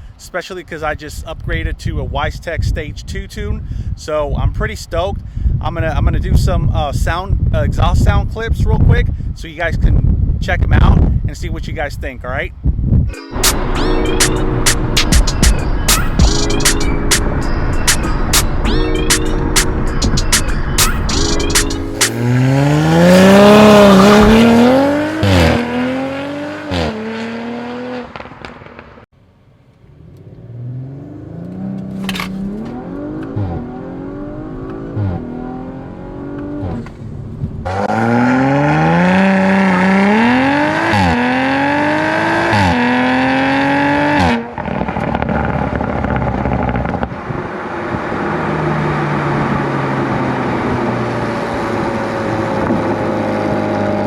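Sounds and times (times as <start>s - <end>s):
car engine accelerating with upshifts: 13.4s - 29.0s, 29.6s - 54.0s.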